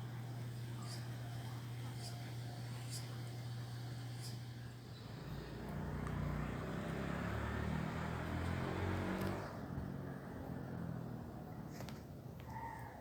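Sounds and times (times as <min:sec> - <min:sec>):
vehicle passing: 0:04.9 - 0:12.3.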